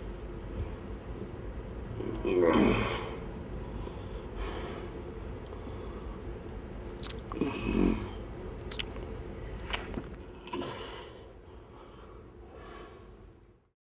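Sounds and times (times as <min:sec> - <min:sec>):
person biting and chewing: 0:06.9 - 0:07.4, 0:08.6 - 0:09.1.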